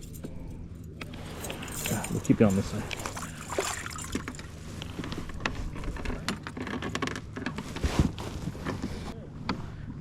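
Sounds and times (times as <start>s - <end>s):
fishing gear clicking and knocking: 5.3s - 7.6s.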